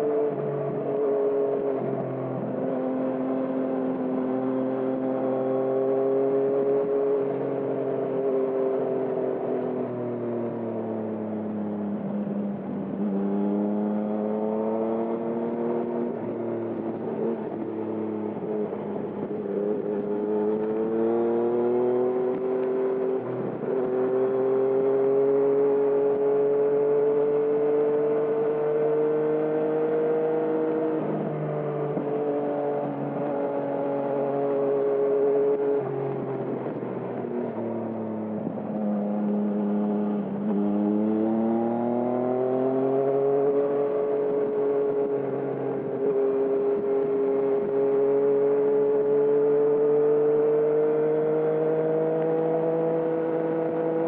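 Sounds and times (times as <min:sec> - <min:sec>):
motorcycle engine revving: 0:00.0 - 0:09.5, 0:10.5 - 0:54.0.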